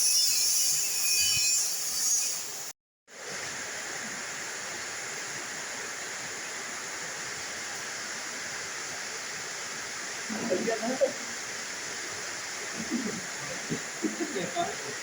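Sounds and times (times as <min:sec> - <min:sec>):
steady rain hiss: 0:03.1 - 0:15.0.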